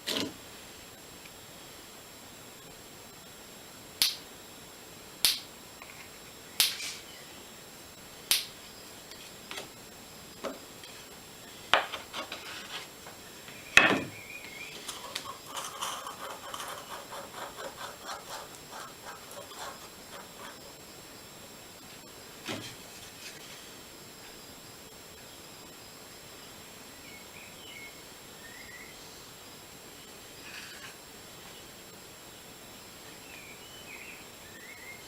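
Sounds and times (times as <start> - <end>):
soft stirring scrapes: 14.7 - 20.8.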